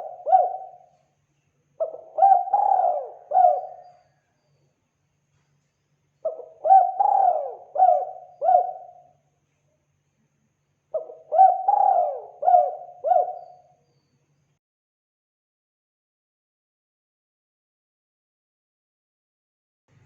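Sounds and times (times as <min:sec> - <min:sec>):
dove cooing: 0:00.0 - 0:00.9, 0:01.8 - 0:04.1, 0:06.2 - 0:09.1, 0:10.9 - 0:13.6.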